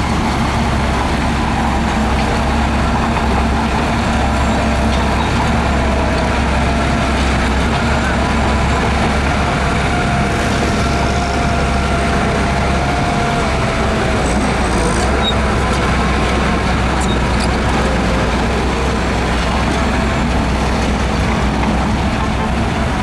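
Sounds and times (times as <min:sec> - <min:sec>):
bulldozer diesel rumble: 0:00.0 - 0:23.0.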